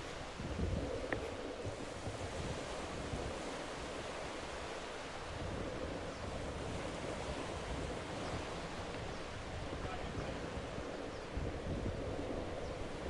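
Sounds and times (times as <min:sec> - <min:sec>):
wind and sea water rushing: 0:00.0 - 0:13.0
wind buffeting microphone: 0:00.0 - 0:13.0.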